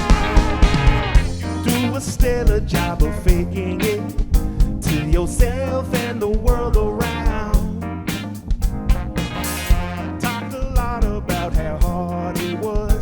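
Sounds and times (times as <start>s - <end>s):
bending guitar lead line: 0.0s - 2.0s, 8.0s - 11.5s
soul band playing: 0.0s - 13.0s.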